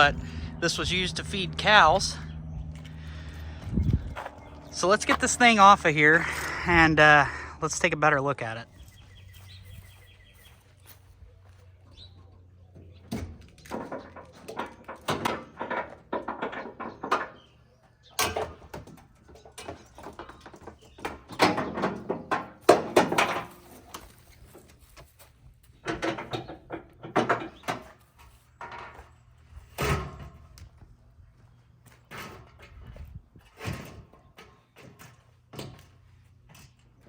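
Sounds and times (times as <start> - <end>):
equipment clanks and thuds: 18.2 - 24.5, 25.8 - 30.6.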